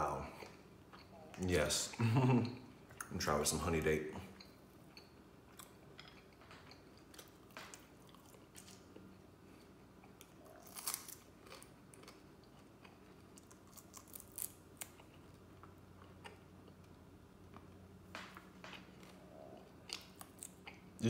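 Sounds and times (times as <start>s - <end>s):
faint chewing: 4.2s - 21.0s.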